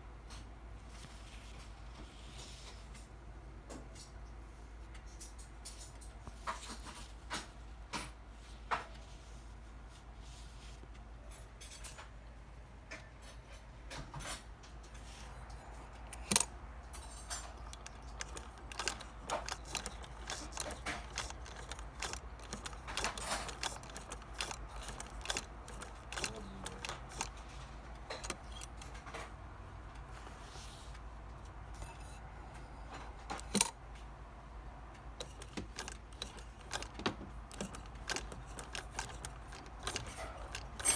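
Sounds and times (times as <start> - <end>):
sewing machine metallic clicks: 15.4 - 30.1, 33.0 - 33.8, 35.0 - 40.9.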